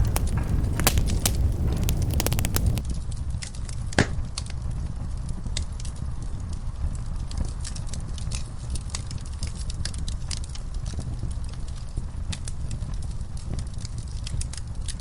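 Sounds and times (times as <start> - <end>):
low rumble: 0.0 - 2.8
wood fire crackling: 0.0 - 2.8.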